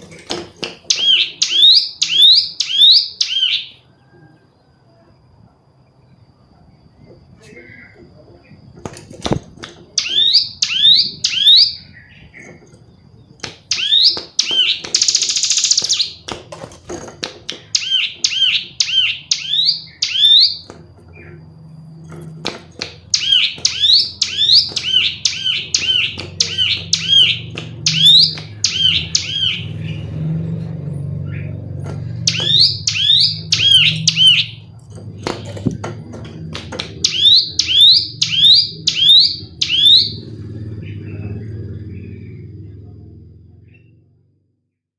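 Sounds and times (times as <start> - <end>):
bird chirping calls: 0.8 - 4.5, 9.8 - 16.3, 17.5 - 21.6, 22.8 - 35.8, 36.4 - 42.8
low hum: 20.7 - 44.6.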